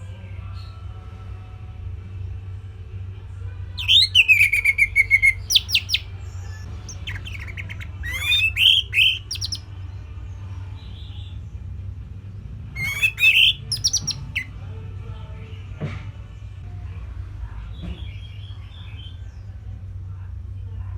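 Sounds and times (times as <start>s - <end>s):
bird singing: 3.8s - 9.6s, 12.8s - 14.5s.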